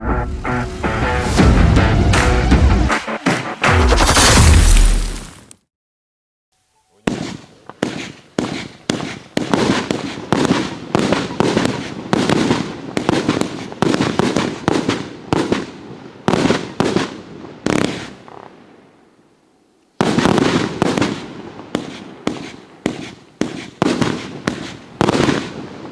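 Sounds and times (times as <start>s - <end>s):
fireworks firing sharp reports: 7.0s - 18.5s, 20.0s - 25.9s.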